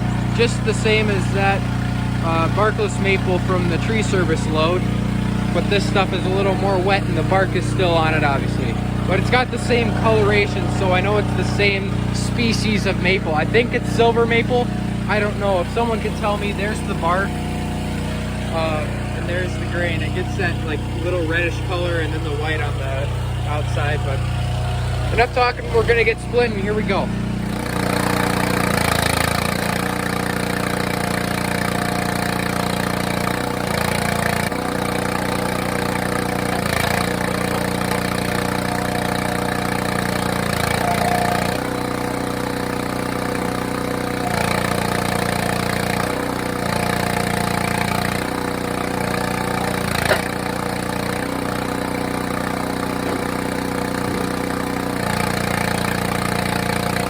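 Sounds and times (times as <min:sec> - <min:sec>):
log splitter engine running: 0:00.0 - 0:57.0
sharp wood crack: 0:33.2 - 0:56.4.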